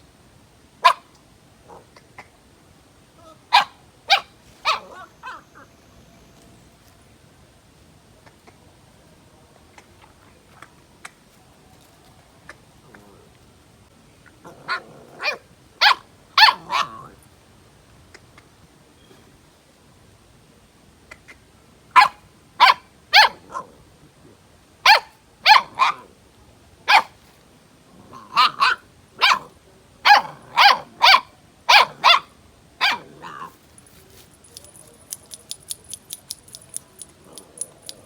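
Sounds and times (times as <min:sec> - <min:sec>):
dog barking: 0:00.8 - 0:01.1, 0:03.5 - 0:05.4, 0:14.7 - 0:17.0, 0:22.0 - 0:23.7, 0:24.9 - 0:26.0, 0:26.9 - 0:27.2, 0:28.4 - 0:29.5, 0:30.1 - 0:33.5
rapid light clicks: 0:34.3 - 0:38.0.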